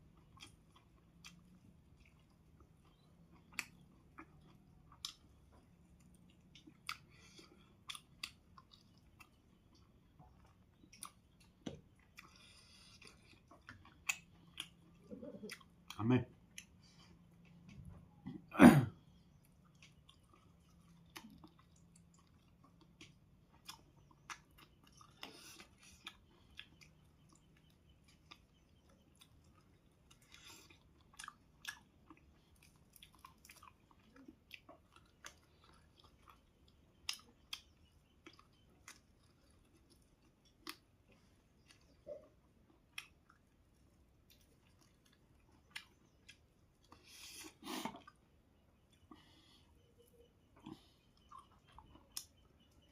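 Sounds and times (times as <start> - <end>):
person chewing and eating: 0.0 - 52.9.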